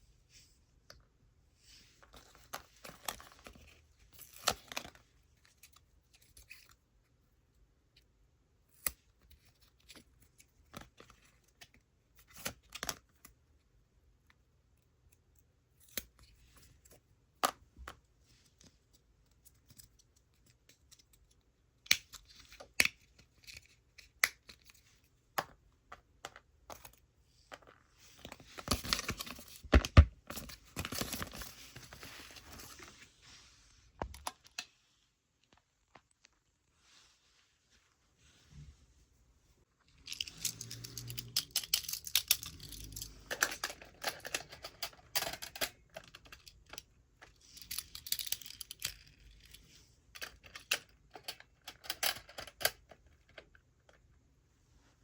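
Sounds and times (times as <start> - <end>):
rustling and scraping: 26.8 - 46.3
toy cars clicking and tapping: 40.1 - 46.8.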